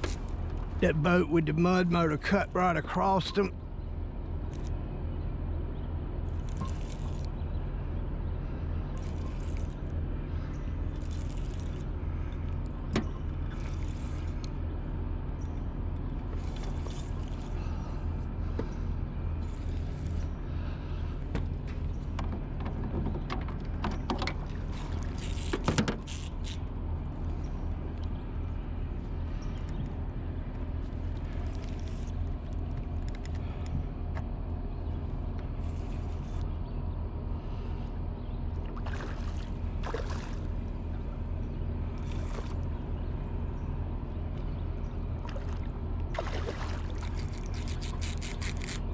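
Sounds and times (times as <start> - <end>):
boat motor running at low speed: 0.0 - 48.9.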